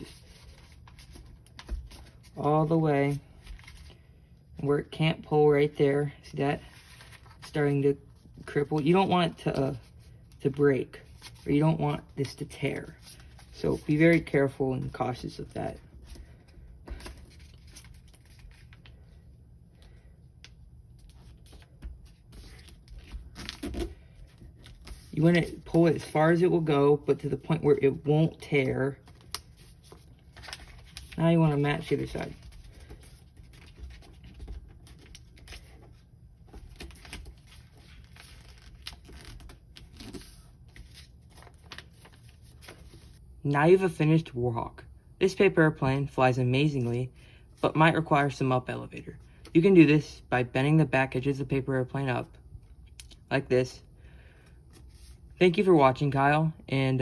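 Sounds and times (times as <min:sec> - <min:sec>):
paper rustling and crinkling: 0:00.0 - 0:02.5, 0:03.1 - 0:04.0, 0:06.6 - 0:19.2, 0:19.8 - 0:26.2, 0:27.4 - 0:43.2
low steady hum: 0:00.0 - 0:57.0.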